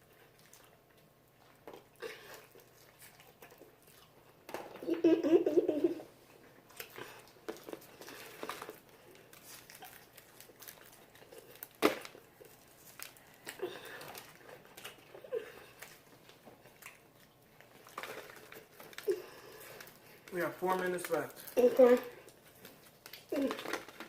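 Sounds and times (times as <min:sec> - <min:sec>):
chewing and crunching food: 0:00.0 - 0:04.8, 0:06.2 - 0:24.0
mouth clicks and crackles: 0:21.0 - 0:24.0.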